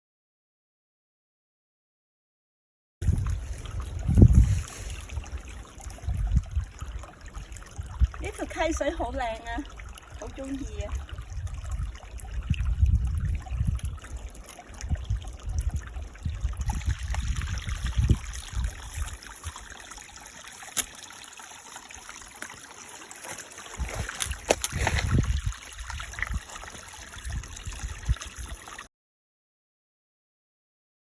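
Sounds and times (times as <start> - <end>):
wind buffeting microphone: 3.0 - 8.8, 9.8 - 19.6, 23.7 - 28.6
stream water trickling: 3.0 - 28.9.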